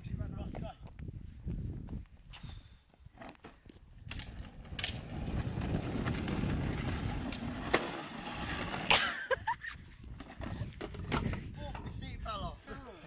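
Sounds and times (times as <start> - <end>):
wheels rolling over pavement: 3.1 - 12.3.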